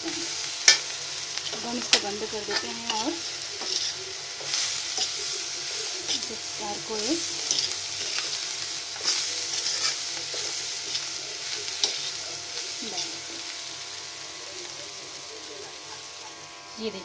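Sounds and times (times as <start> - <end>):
oil sizzling in a pan: 0.0 - 17.0
spatula scraping a metal pan: 1.9 - 5.2, 9.0 - 11.0.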